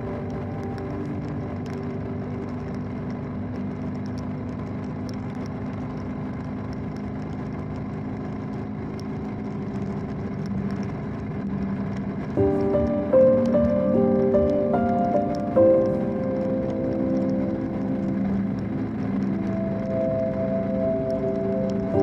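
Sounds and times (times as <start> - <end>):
faint raindrop ticks: 0.0 - 22.0
motorcycle engine drone: 0.0 - 22.0
wind and road noise: 0.0 - 22.0.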